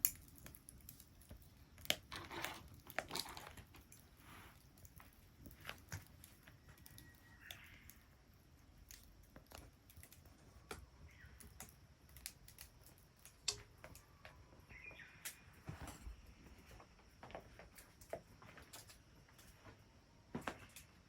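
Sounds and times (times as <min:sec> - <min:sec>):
bonfire crackling and snapping: 0:00.0 - 0:15.6.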